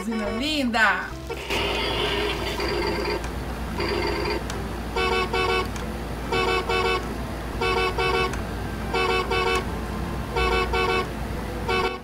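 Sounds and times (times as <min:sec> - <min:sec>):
toy car electronic horn beeping: 0:00.0 - 0:00.6, 0:05.0 - 0:05.7, 0:06.3 - 0:07.0, 0:07.6 - 0:09.6, 0:10.3 - 0:11.1, 0:11.7 - 0:12.0.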